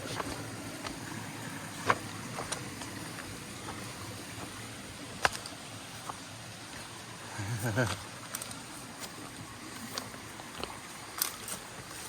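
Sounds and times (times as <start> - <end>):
shallow stream rushing: 0.0 - 12.0.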